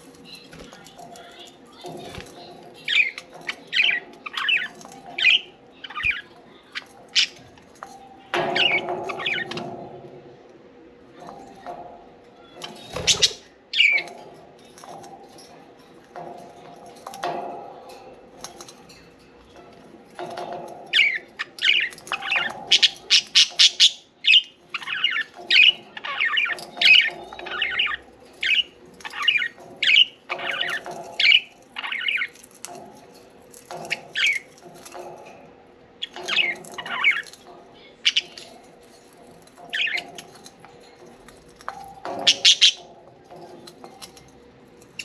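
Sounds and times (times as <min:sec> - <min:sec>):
budgerigars chirping: 0:42.2 - 0:42.8.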